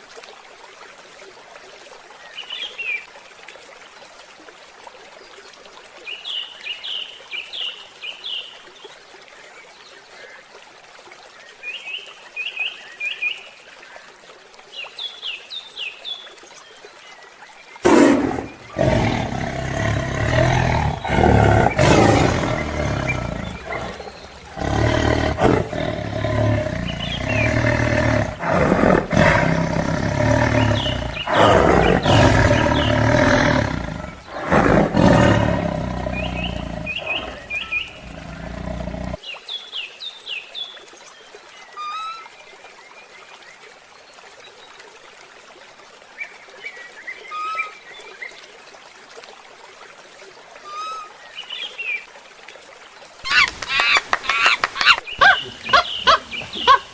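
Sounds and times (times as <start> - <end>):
large animal calling: 17.8 - 39.2, 53.3 - 56.9
bird chirps: 53.3 - 56.9.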